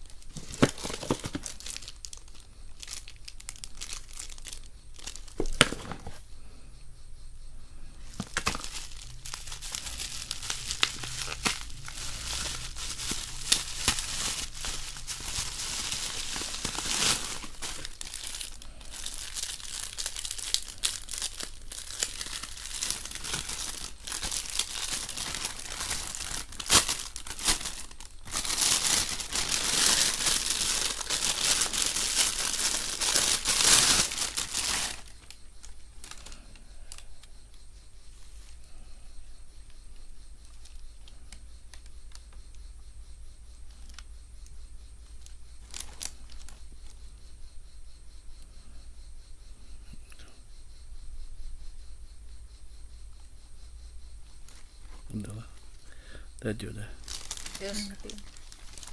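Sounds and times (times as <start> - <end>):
packaging crinkling and rustling: 0.0 - 6.2, 8.0 - 36.4, 45.6 - 46.6, 57.0 - 58.9.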